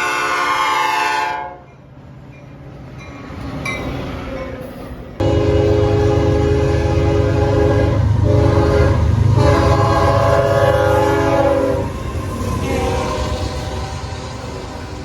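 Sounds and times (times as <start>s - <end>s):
locomotive air horn blasts: 0.0s - 1.6s, 5.2s - 12.0s, 12.6s - 14.9s
train rumbling past: 0.0s - 15.0s.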